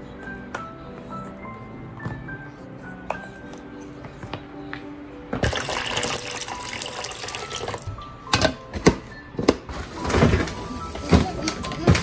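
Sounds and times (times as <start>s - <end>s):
tap water running into sink: 5.4s - 7.9s.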